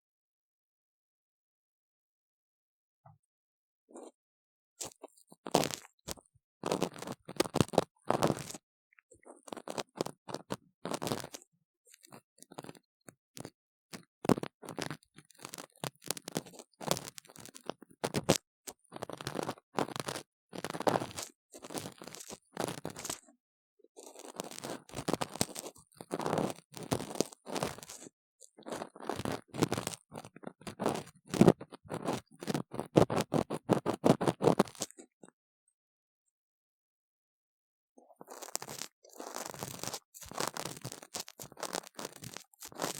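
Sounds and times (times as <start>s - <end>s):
tool scraping inside model ear: 24.0s - 34.9s, 38.2s - 42.9s
ear-cleaning tool scraping: 38.2s - 42.9s.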